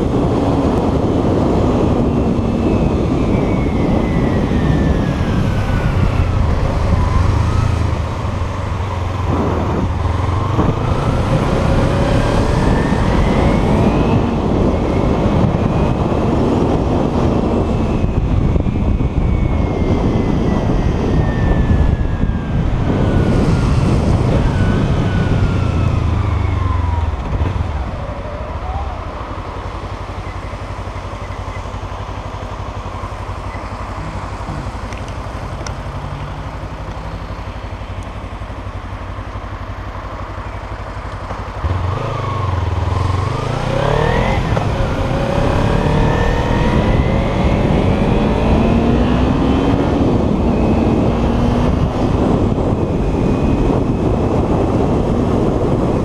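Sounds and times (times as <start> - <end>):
motorcycle engine revving: 0.0 - 56.0
wind and road noise: 0.0 - 56.0
motorcycle engine idling: 27.1 - 41.7.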